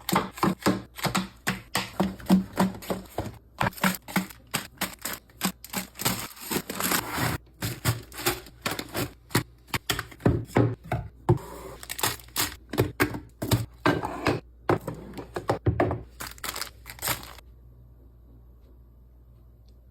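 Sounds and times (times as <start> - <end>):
plastic containers clicking and crinkling: 0.0 - 11.0, 11.8 - 13.9, 14.7 - 17.4
faint hum: 16.2 - 19.9.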